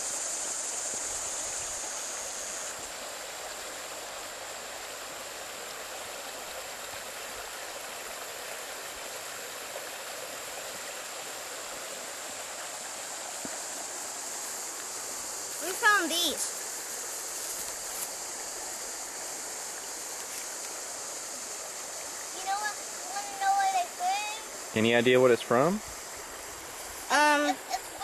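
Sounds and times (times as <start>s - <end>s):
stream water rushing: 0.0s - 28.0s.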